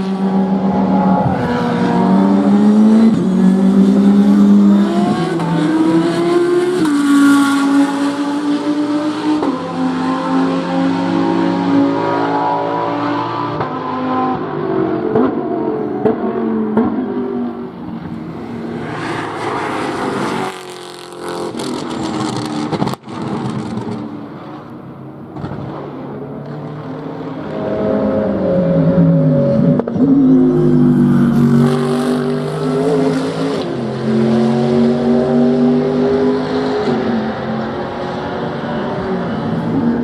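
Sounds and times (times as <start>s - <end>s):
car accelerating through gears: 0.0s - 17.2s, 26.4s - 40.0s
race car engines: 0.0s - 40.0s.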